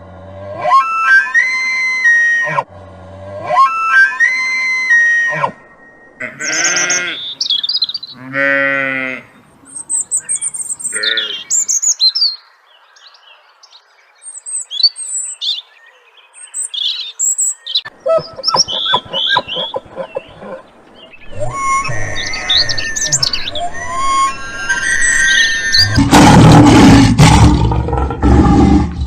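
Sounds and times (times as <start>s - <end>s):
long wavering animal calls: 0.4s - 11.6s, 17.9s - 27.2s
birds chirping and twittering: 5.6s - 27.0s.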